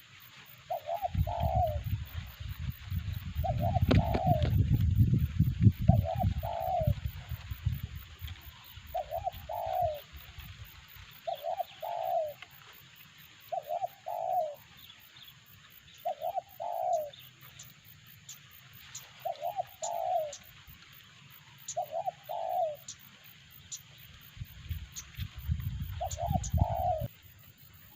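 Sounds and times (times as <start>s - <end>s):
dove cooing: 0.7s - 2.2s, 3.3s - 4.8s, 5.8s - 7.6s, 8.6s - 10.5s, 11.2s - 12.6s, 13.4s - 14.9s, 16.0s - 17.3s, 18.9s - 20.6s, 21.6s - 23.0s, 25.8s - 27.1s.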